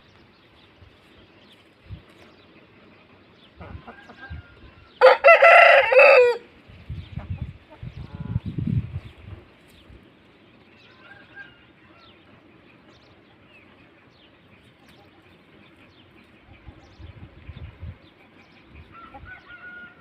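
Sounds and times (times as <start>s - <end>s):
rooster crowing: 3.9s - 6.4s, 10.8s - 12.2s, 19.0s - 20.0s.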